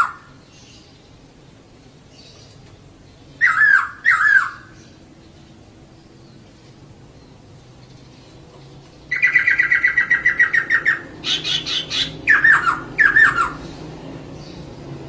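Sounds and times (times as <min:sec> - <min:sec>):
bird calling fast trill: 0:03.4 - 0:04.8, 0:09.1 - 0:13.6.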